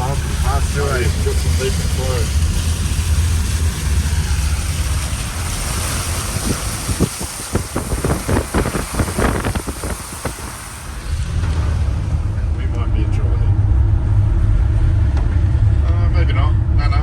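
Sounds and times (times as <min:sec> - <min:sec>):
hiss of water: 0:00.0 - 0:12.3
water splashing against vehicle: 0:00.0 - 0:12.8
engine and road rumble: 0:00.0 - 0:17.0.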